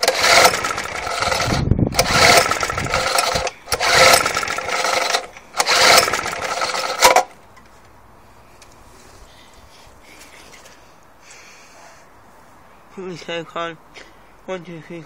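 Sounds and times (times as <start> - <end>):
engine cranking: 0.0 - 7.3
lawnmower recoil starter pulls: 0.0 - 7.3.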